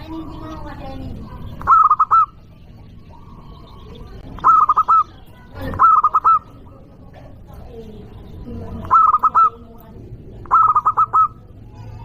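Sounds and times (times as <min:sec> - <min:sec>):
dove cooing: 0:00.0 - 0:07.5, 0:08.5 - 0:12.0.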